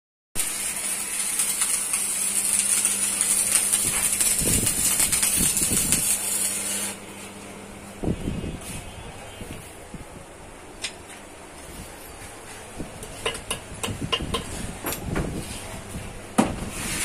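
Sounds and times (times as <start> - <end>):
gas hissing: 0.4 - 7.1
compressor humming: 0.4 - 17.0.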